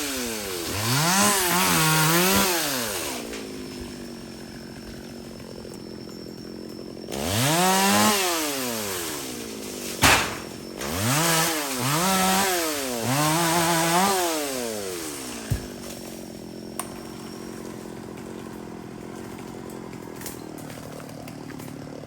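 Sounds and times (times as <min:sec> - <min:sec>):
chainsaw revving and idling: 0:00.0 - 0:22.0
loud sharp knock: 0:10.0 - 0:10.5.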